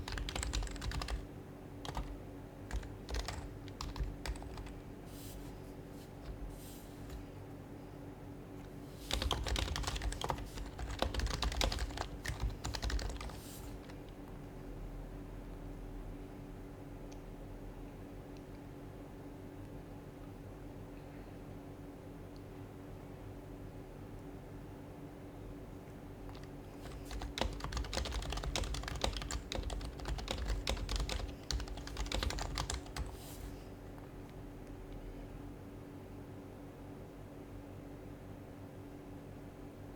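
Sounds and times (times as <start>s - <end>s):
fast typing on a keyboard: 0.0s - 4.8s, 9.0s - 14.0s, 26.3s - 33.2s.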